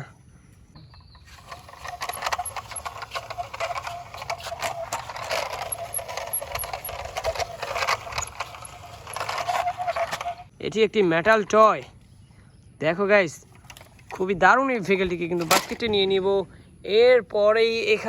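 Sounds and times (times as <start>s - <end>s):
metal toy clicking and rattling: 1.3s - 10.5s.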